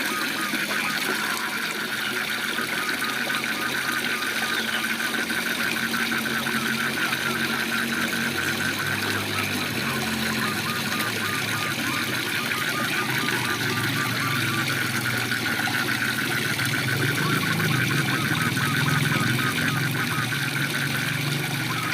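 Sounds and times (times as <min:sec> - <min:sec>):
frogs calling rhythmically: 0:00.0 - 0:21.9
low droning calls: 0:00.0 - 0:21.9
waterfall rushing: 0:04.9 - 0:21.9.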